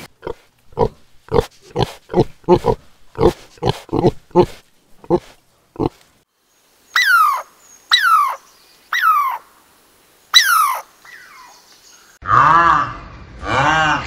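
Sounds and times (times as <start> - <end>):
lower animal call rising and falling: 7.0 - 9.4, 10.4 - 11.5.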